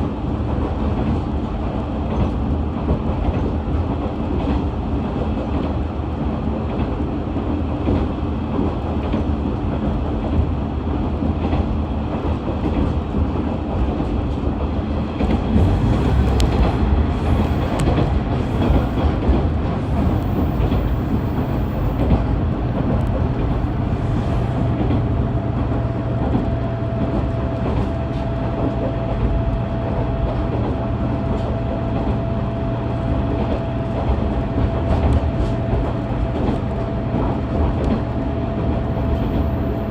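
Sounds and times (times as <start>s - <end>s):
wheels clattering on rails: 11.1s - 32.3s
diesel engine droning: 15.4s - 26.2s
steady hum: 15.5s - 24.9s.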